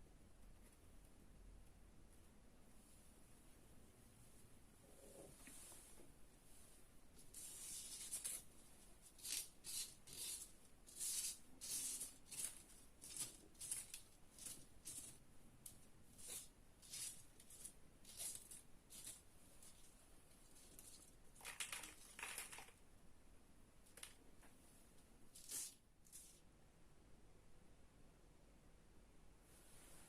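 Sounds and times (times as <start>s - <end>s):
paper folding and creasing: 20.5s - 22.8s.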